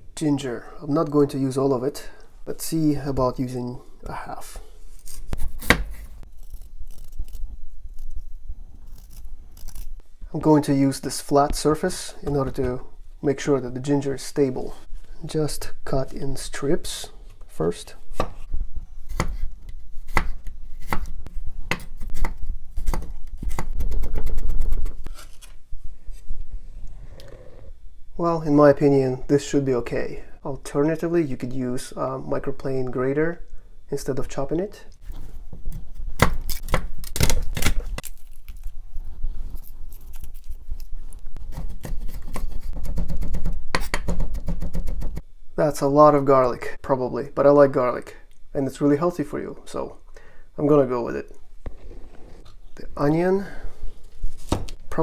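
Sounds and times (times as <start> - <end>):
knife cutting on cutting board: 5.0 - 10.0, 18.1 - 25.4, 39.4 - 45.2.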